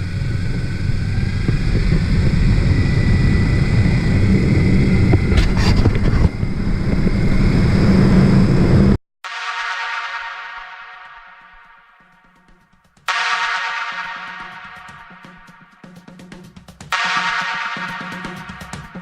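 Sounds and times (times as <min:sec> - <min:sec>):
motorcycle running at speed: 0:00.0 - 0:09.0.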